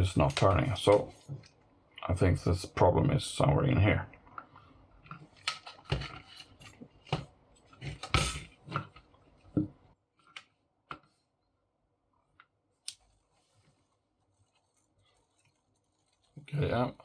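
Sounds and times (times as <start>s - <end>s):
plastic parts clicking and knocking: 4.4s - 11.1s.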